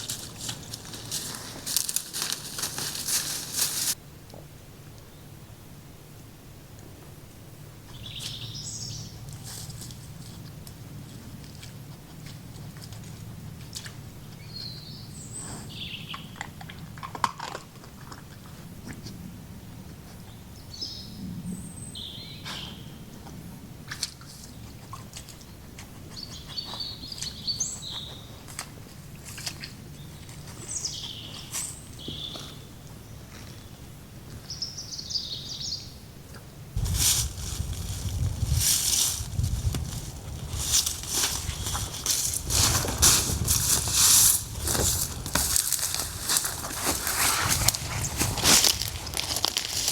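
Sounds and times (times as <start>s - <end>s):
loud rustling: 0.0s - 4.0s, 36.8s - 49.9s.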